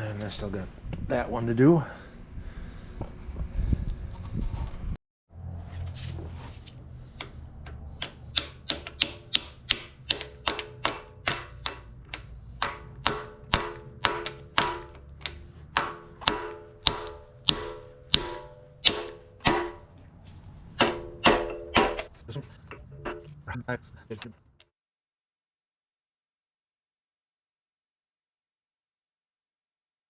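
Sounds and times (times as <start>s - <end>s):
hammer striking steel: 8.0s - 20.0s, 20.7s - 23.4s.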